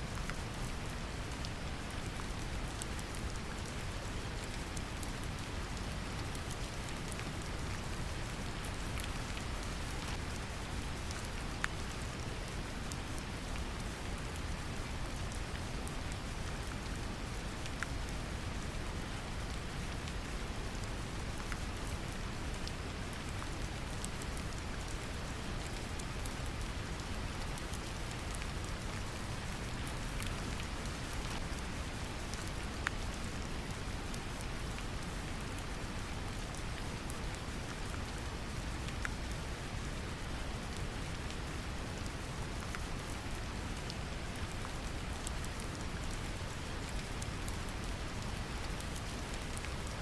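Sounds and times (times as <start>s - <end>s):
gentle rain falling: 0.0s - 50.0s
raindrop ticks: 8.6s - 16.6s, 21.4s - 50.0s.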